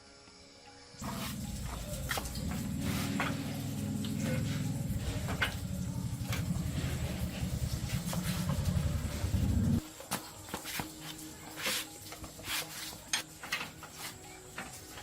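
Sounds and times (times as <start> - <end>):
small engine running: 1.0 - 9.8.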